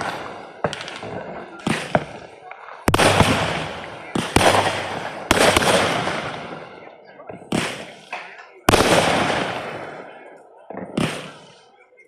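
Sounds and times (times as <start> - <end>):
firework crackle: 0.0 - 6.8
firework bangs: 0.0 - 11.8.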